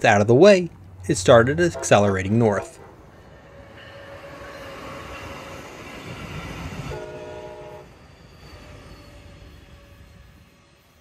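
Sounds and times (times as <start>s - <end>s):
passenger train running past: 0.7s - 11.0s
train horn blast: 1.6s - 2.8s, 6.9s - 7.9s.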